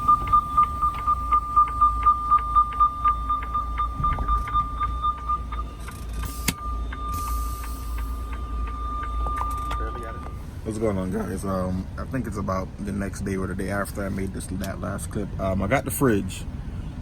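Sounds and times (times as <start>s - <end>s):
rapid electronic beeping: 0.0s - 10.5s
faint steady tone: 0.0s - 11.8s
diesel truck engine idling: 0.0s - 17.0s.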